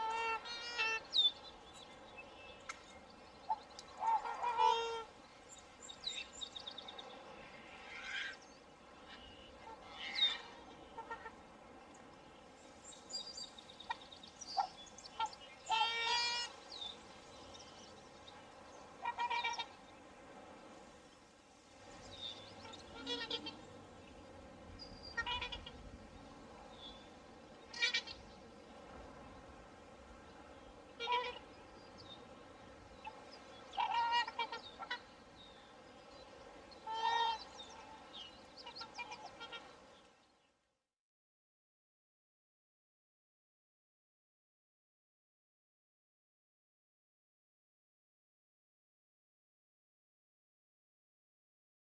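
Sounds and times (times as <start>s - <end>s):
swans calling: 0.0s - 1.4s, 3.4s - 5.2s, 7.7s - 8.4s, 9.0s - 11.5s, 13.8s - 16.7s, 18.9s - 19.9s, 22.4s - 23.8s, 25.0s - 25.9s, 27.6s - 28.3s, 30.9s - 31.7s, 33.0s - 35.3s, 36.3s - 39.9s
low background noise: 0.0s - 40.8s
other birds chirping: 12.0s - 20.0s, 21.9s - 28.9s.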